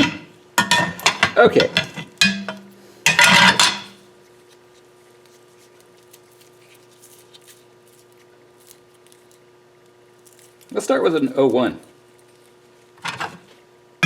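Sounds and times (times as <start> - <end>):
sharp clack with ringing tone: 2.2 - 4.0.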